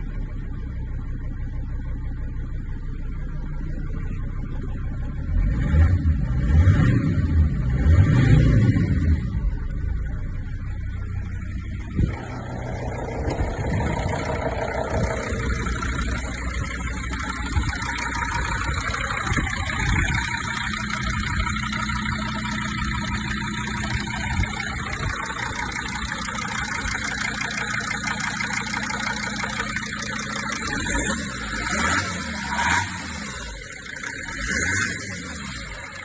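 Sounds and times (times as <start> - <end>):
diesel engine idling: 0.0 - 5.6, 9.2 - 36.0.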